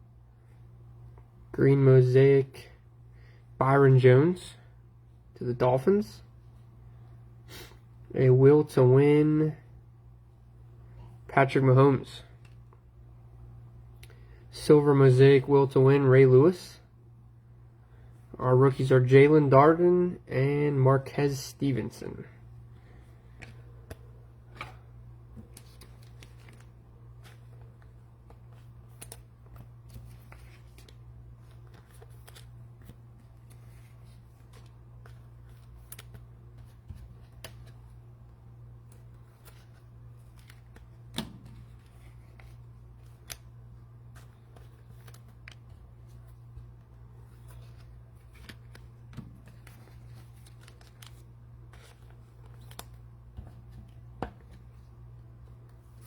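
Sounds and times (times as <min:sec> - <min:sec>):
steady low hum: 0:00.0 - 0:56.0
cards and plastic packaging handled: 0:23.1 - 0:56.0.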